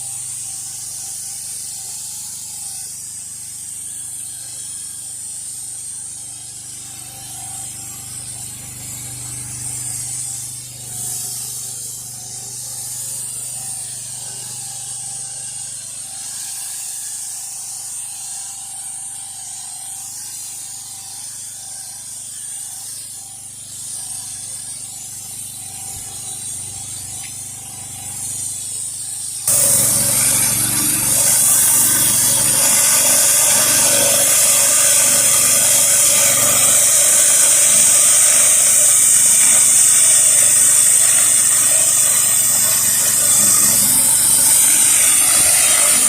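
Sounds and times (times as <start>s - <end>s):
water spraying onto concrete: 24.9s - 46.0s
pressure washer engine hum: 29.5s - 46.0s.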